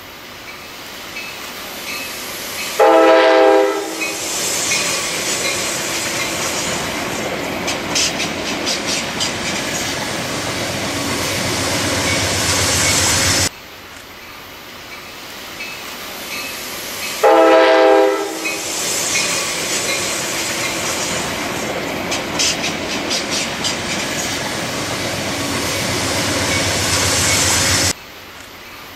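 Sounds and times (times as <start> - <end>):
train running noise: 0.0 - 28.0
train horn blast: 2.8 - 4.2, 17.2 - 18.7.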